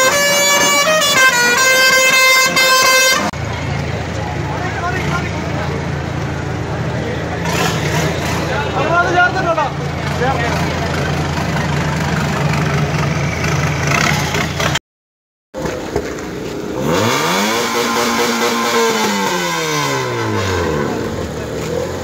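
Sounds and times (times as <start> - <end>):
pickup engine humming: 0.0 - 14.8, 15.6 - 22.0
car engine revving: 2.2 - 14.8, 15.6 - 22.0.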